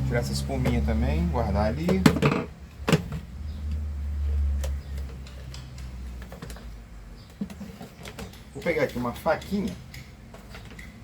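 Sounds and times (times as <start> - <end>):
plastic parts clicking and tapping: 4.6 - 11.0.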